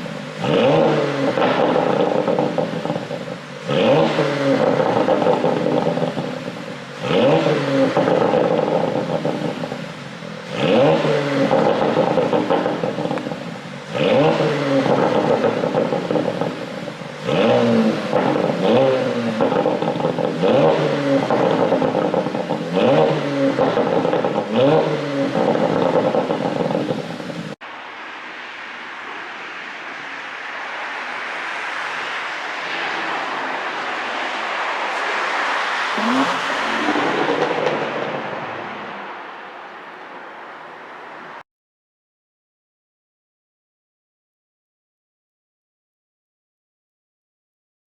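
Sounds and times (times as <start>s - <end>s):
car engine revving: 0.0s - 27.6s, 35.8s - 39.3s.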